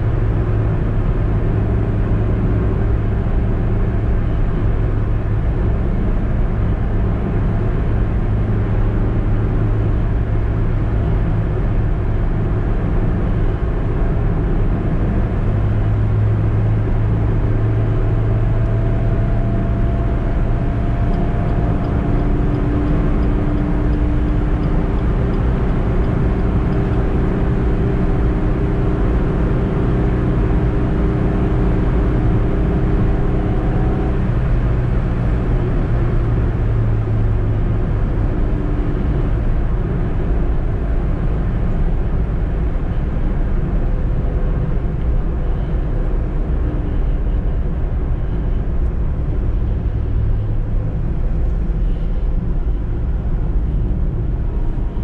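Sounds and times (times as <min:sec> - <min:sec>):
car engine hum while driving: 0:00.0 - 0:55.0
road noise: 0:00.0 - 0:55.0.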